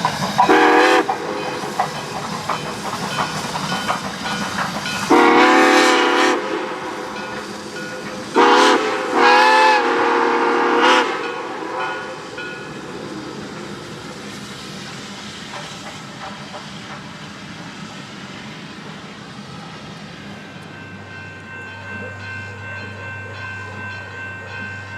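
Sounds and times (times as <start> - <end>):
train running noise: 0.0 - 24.9
steam locomotive whistle: 0.4 - 2.1, 5.0 - 12.7.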